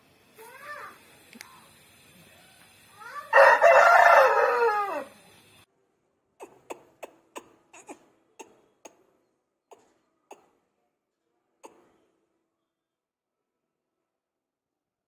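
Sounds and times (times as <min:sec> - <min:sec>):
rooster crowing: 0:03.0 - 0:05.2.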